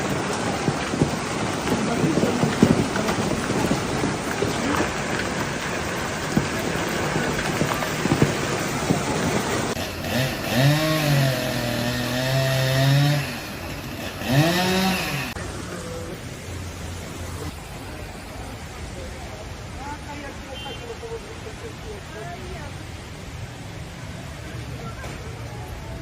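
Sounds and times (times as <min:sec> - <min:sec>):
hail and heavy rain pelting: 0:00.0 - 0:11.9.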